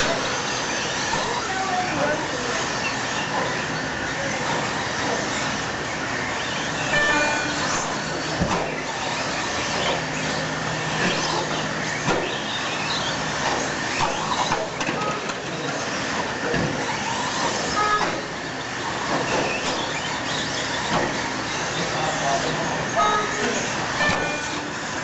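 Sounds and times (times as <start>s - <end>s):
rc truck motors whining: 0.0s - 25.0s.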